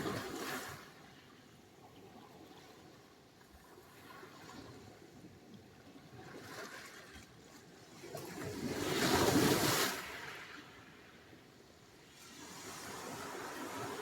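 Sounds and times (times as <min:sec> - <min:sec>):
waves washing on shore: 0:08.5 - 0:10.9, 0:12.0 - 0:14.0.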